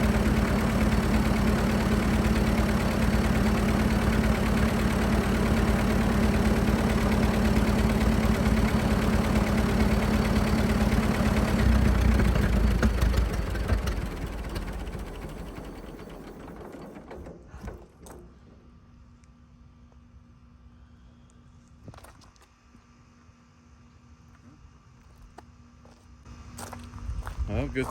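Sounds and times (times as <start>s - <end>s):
tractor engine running: 0.0s - 19.5s.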